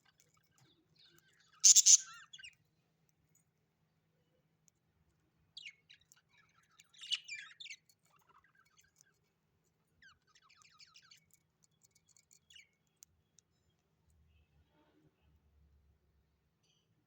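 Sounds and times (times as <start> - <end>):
bird twittering: 1.6 - 2.2.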